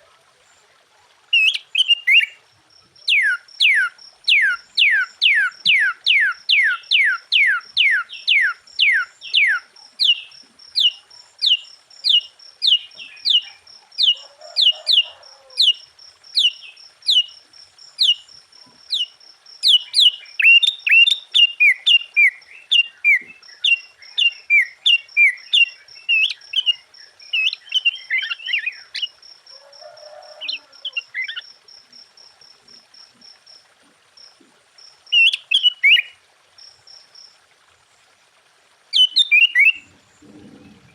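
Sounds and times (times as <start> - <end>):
bird song whistled notes: 1.4 - 2.4, 3.0 - 14.8, 18.9 - 29.1, 39.0 - 39.9.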